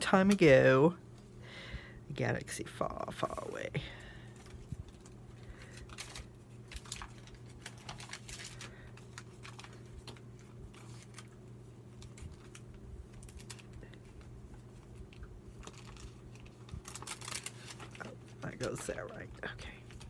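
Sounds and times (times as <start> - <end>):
steady low hum: 0.0 - 20.0
paper rustling: 4.3 - 20.0.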